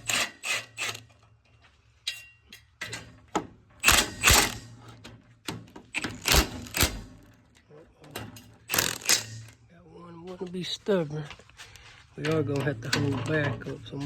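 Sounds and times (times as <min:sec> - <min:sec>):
hand ratchet clicking: 0:06.0 - 0:07.0, 0:08.7 - 0:09.4.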